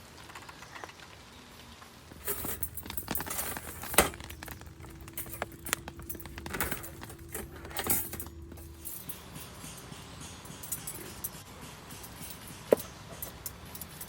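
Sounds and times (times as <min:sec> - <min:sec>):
faint steady hum: 0:02.0 - 0:11.4
metal parts clinking and rattling: 0:02.1 - 0:09.8.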